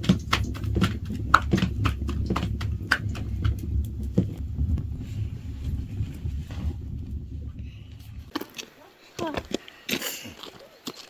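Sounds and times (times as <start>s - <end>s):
sharp knocks: 0.0s - 8.6s
low rumble: 0.0s - 9.1s.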